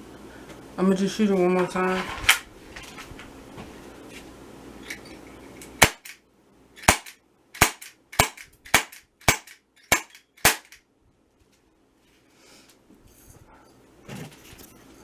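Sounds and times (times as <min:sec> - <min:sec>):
air pistol shots: 0:05.8 - 0:06.2, 0:06.8 - 0:10.8.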